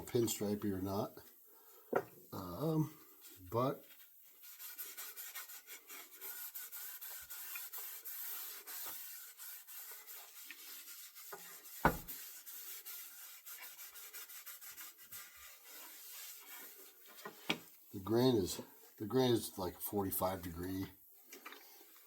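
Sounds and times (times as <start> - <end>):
rubbing strokes on wooden handle: 2.6 - 19.6.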